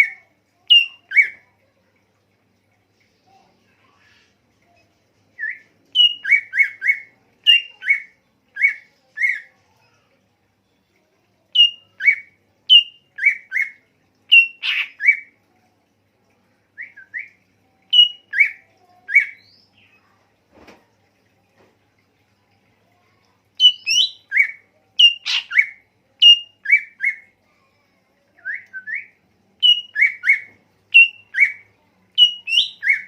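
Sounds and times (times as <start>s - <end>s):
songbird whistling: 5.4s - 9.4s, 11.6s - 13.7s, 17.9s - 19.6s, 28.4s - 31.6s, 32.2s - 33.0s.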